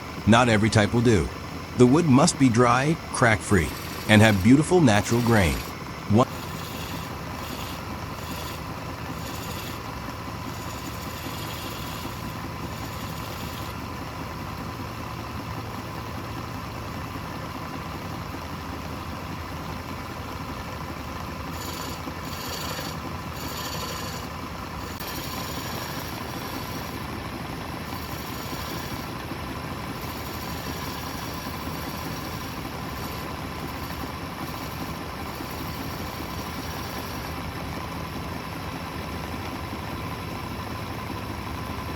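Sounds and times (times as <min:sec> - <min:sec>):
tool cutting spinning wood: 0:01.9 - 0:14.0, 0:21.5 - 0:37.6
wood lathe humming: 0:03.0 - 0:14.0, 0:21.5 - 0:38.2.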